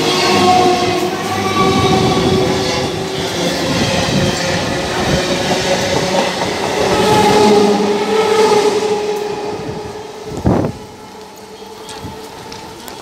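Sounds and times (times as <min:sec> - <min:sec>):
train wheels rushing on rails: 0:00.0 - 0:13.0.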